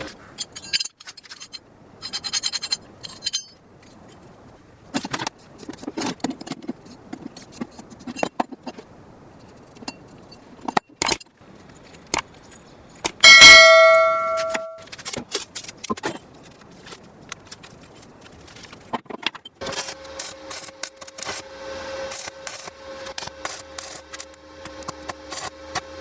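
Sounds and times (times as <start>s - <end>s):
loud metallic clang ringing: 13.2s - 14.8s.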